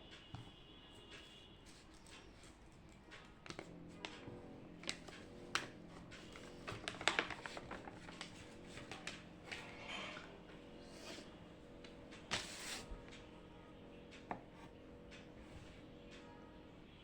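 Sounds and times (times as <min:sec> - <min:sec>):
faint steady tones: 0:00.0 - 0:17.0
desk work clicks and taps: 0:14.1 - 0:15.3.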